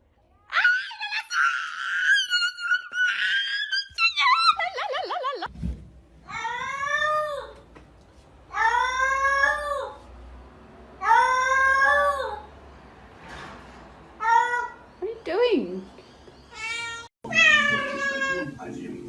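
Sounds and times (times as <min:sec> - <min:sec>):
cat meowing: 0:16.6 - 0:18.6.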